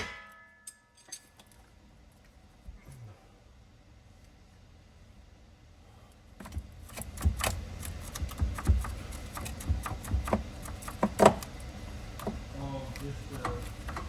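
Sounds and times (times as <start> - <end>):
hand tools and metal parts clicking: 0.0 - 1.7.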